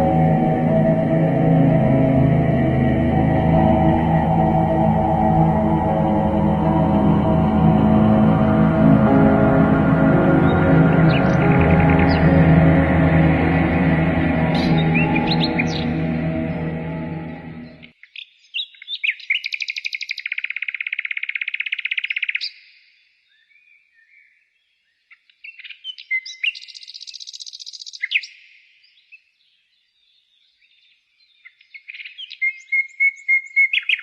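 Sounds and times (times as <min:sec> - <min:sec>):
songbirds singing: 0:10.1 - 0:13.4, 0:18.0 - 0:34.0.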